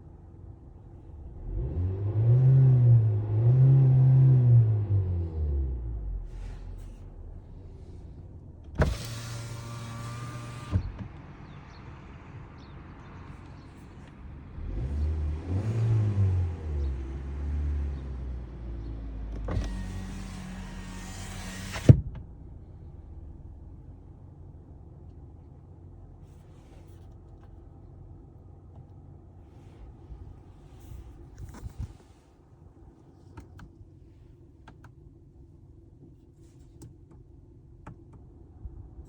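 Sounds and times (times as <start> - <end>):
engine revving: 1.4 - 6.0, 14.5 - 18.4
power window motor: 8.7 - 11.0, 19.4 - 22.0
window motor click: 8.8 - 10.8, 19.5 - 22.0.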